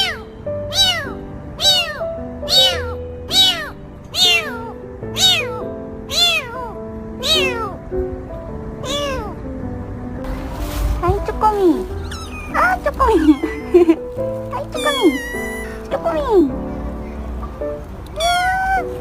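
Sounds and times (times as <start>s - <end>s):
cat meowing: 0.0s - 7.8s, 8.8s - 9.4s, 11.9s - 16.4s, 18.1s - 19.0s
background music: 0.0s - 19.0s.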